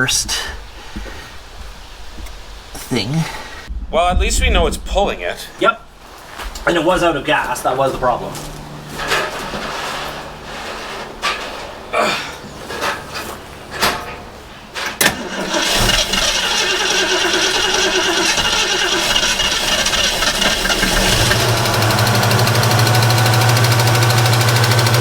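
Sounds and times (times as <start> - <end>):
car engine starting and running: 15.0 - 25.0.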